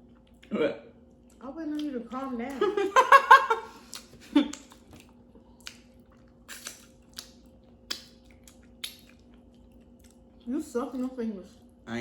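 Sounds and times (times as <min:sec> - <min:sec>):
faint steady hum: 0:00.0 - 0:12.0
person licking fingers: 0:03.9 - 0:10.2.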